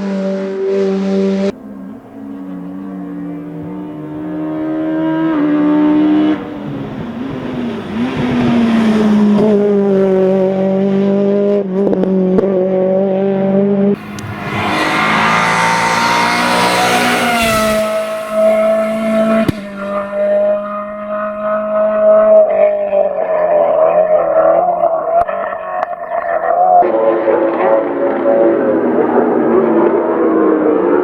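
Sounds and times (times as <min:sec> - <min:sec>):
race car engines at high revs: 0:00.0 - 0:31.0
car passing close: 0:14.0 - 0:25.6.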